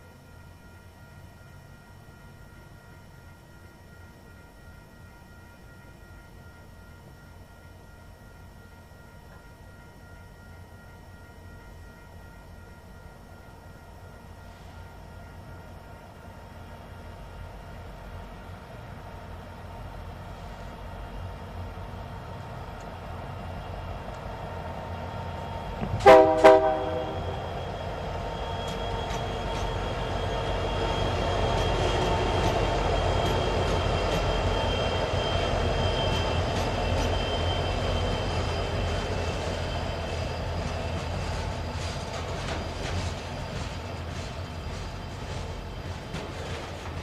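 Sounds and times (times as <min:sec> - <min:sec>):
diesel locomotives rumbling: 0:14.4 - 0:47.0
locomotive horn blasts: 0:25.8 - 0:27.5
rail cars clicking over joints: 0:28.4 - 0:37.4, 0:38.4 - 0:47.0.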